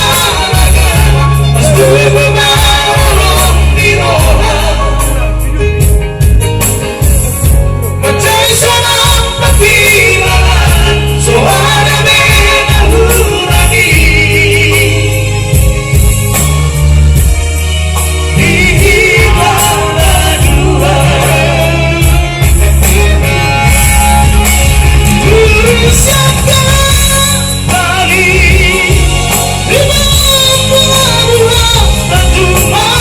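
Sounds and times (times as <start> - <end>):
vocal trio singing in harmony: 0.0 - 5.9, 8.0 - 16.2, 18.0 - 33.0
pop band playing: 0.0 - 33.0
steady bass line: 0.0 - 33.0.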